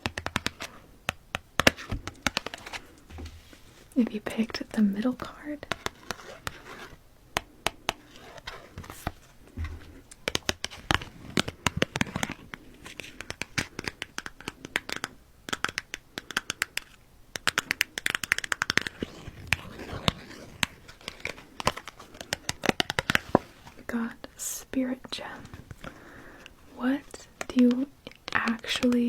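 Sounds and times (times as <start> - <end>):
cards being shuffled: 0.0 - 3.9, 7.9 - 23.9.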